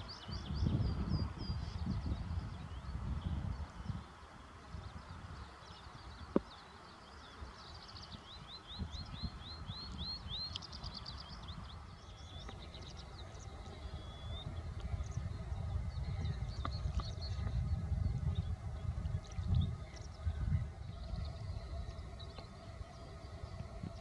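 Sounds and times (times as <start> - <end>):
steady low rumble: 8.4 - 24.0.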